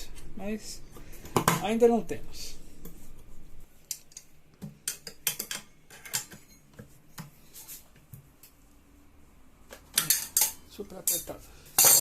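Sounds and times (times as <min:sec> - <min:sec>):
hand tools clinking on metal: 0:10.0 - 0:12.0.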